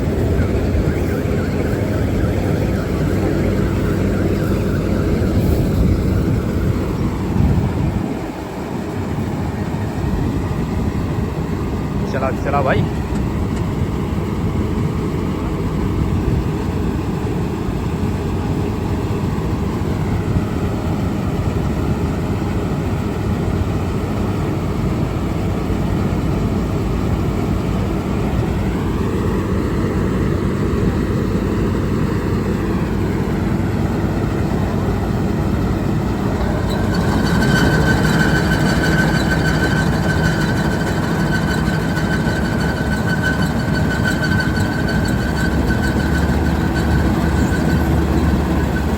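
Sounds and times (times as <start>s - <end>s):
whine sliding in pitch: 0.0s - 8.5s, 34.0s - 48.9s
loud high whine: 0.0s - 16.8s, 27.4s - 48.9s
diesel engine drone: 0.0s - 48.9s.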